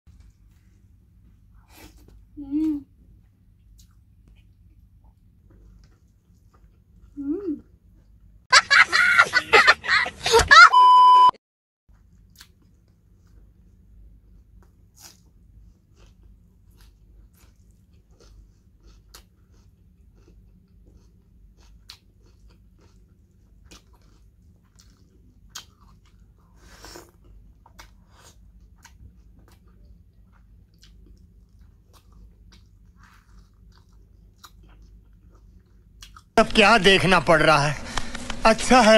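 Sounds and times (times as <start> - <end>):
person chewing and eating: 1.4 - 8.3, 11.9 - 36.8
faint low hum: 11.9 - 38.9.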